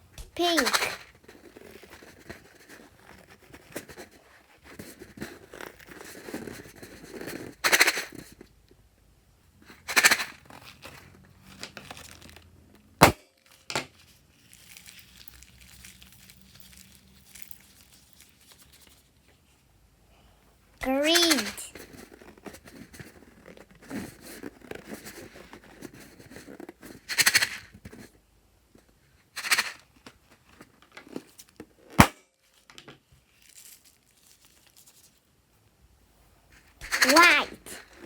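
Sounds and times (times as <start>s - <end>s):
slime crinkling and rustling: 13.5s - 19.2s, 32.5s - 35.2s.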